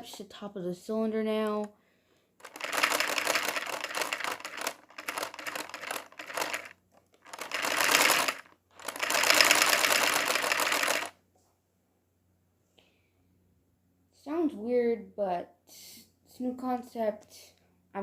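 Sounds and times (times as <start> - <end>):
plastic engine model clattering: 2.4 - 11.1.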